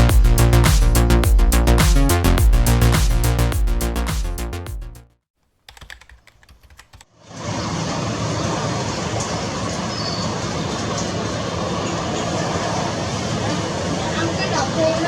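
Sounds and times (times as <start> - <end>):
electronic music: 0.0 - 5.2
jet engines roaring: 7.3 - 15.0.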